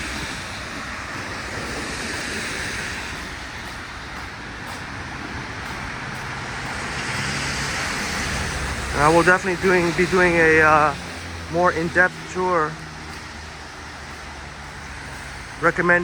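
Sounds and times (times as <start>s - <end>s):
tyres hissing on wet road: 0.0s - 16.0s.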